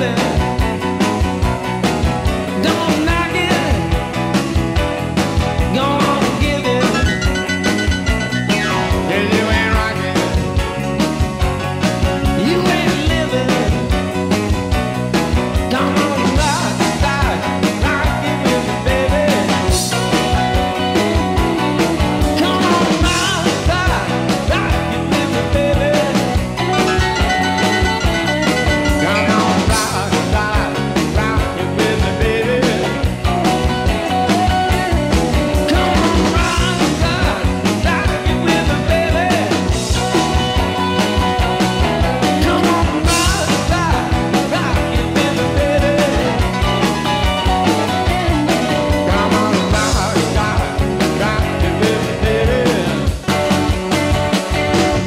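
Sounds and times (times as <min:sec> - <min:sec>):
rock music with guitar: 0:00.0 - 0:55.0
person singing: 0:02.6 - 0:03.9, 0:05.7 - 0:10.5, 0:12.3 - 0:13.8, 0:15.7 - 0:20.4, 0:22.3 - 0:33.0, 0:35.6 - 0:41.0, 0:42.0 - 0:46.9, 0:48.4 - 0:53.1.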